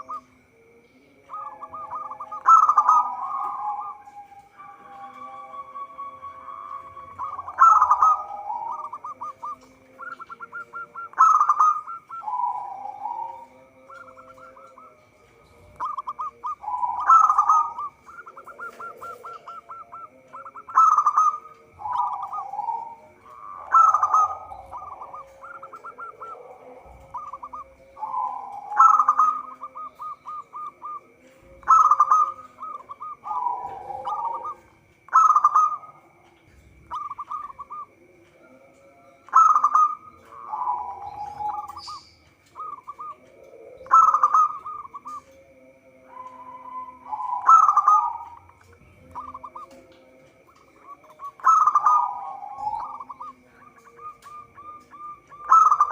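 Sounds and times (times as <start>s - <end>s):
dove cooing: 0.0s - 55.9s.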